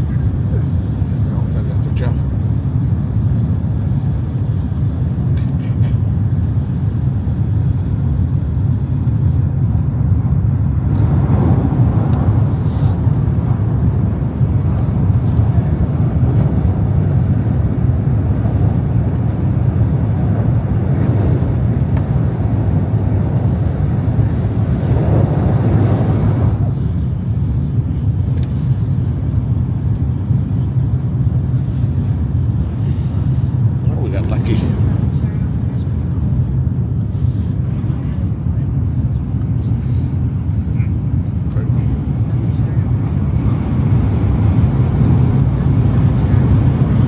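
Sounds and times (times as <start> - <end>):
train running with low rumble: 0.0 - 47.0.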